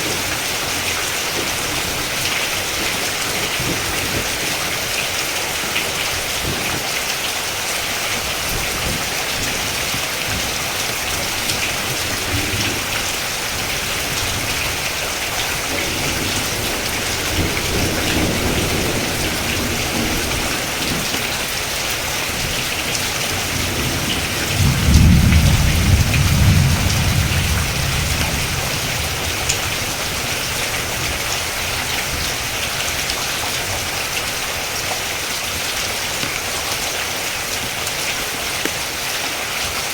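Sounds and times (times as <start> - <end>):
thunder rumbling: 0.0 - 36.8
steady rain: 0.0 - 39.9.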